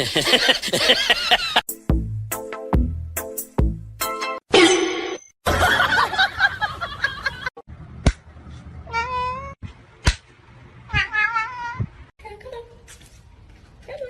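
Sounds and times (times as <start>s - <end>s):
cat meowing: 8.8s - 9.6s, 10.9s - 12.0s.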